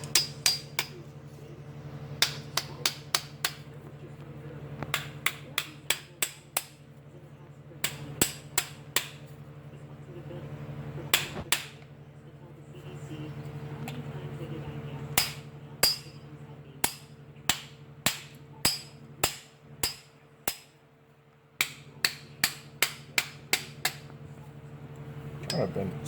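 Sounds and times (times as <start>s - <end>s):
hammer striking metal: 0.0s - 1.0s, 2.2s - 3.7s, 7.8s - 9.2s, 15.2s - 16.2s, 16.8s - 20.7s, 21.6s - 24.0s
steady low hum: 0.0s - 26.0s.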